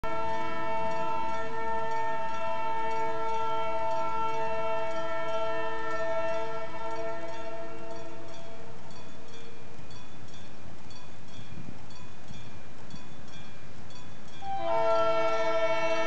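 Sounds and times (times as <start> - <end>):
locomotive air horn chord: 0.0 - 8.9, 14.4 - 16.0.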